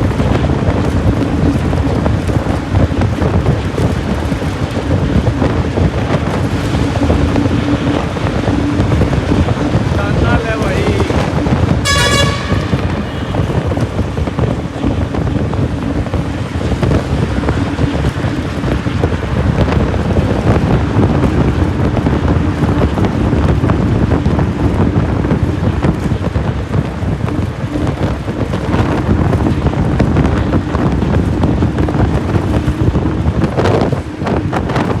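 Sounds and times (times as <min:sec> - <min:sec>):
vehicle ride rumble and wind: 0:00.0 - 0:35.0
low hum: 0:03.9 - 0:21.9
brief high tone: 0:11.8 - 0:14.3.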